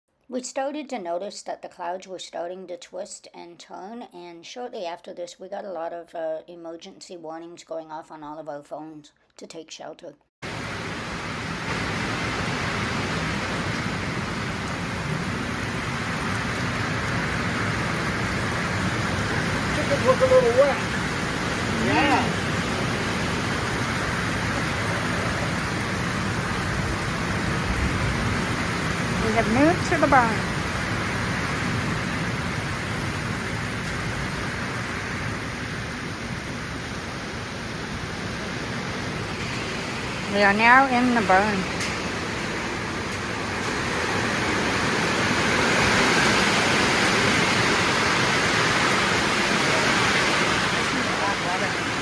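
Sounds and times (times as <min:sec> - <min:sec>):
heavy rain hissing: 0:10.4 - 0:52.0.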